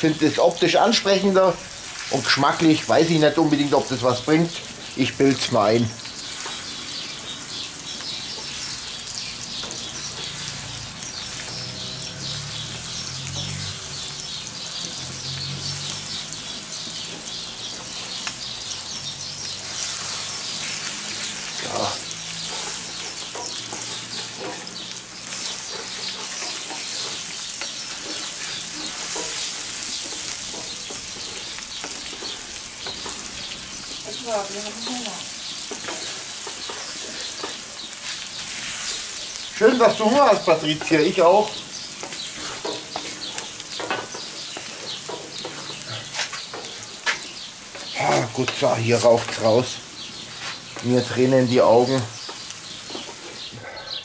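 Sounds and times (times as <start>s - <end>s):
food sizzling in a pan: 0.0s - 53.5s
wooden spatula scraping: 19.6s - 53.5s.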